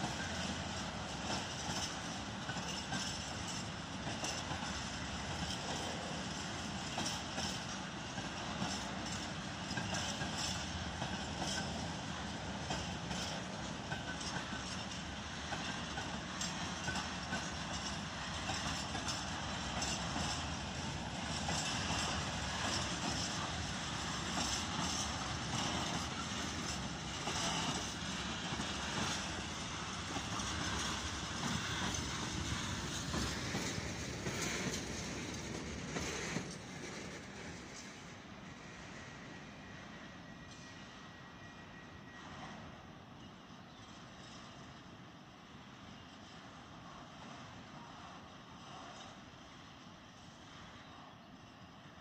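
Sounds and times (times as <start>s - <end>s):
train wheels rumbling on rail: 0.0s - 52.0s
wheels clicking over rail joints: 12.7s - 38.1s.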